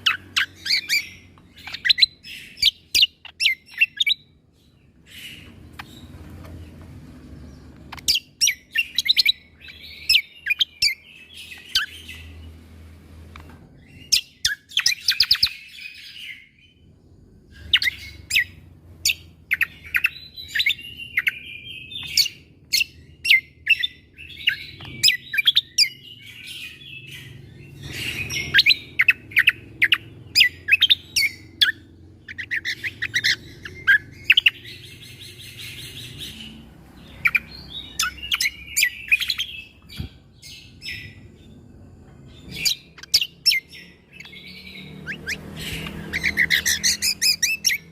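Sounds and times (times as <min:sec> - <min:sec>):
bird singing sharp clipped notes: 0:05.0 - 0:12.6, 0:42.1 - 0:47.9.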